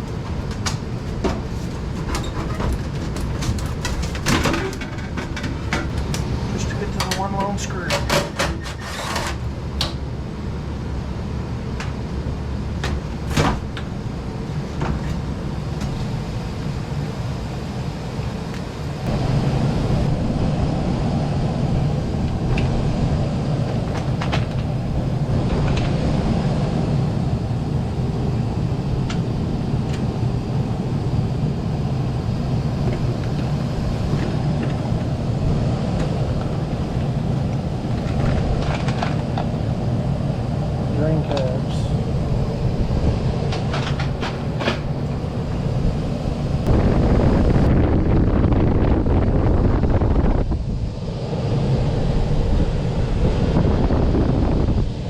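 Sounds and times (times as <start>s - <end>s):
clicks and knocks on metal panel: 0.0s - 10.0s
low mechanical hum: 0.0s - 55.0s.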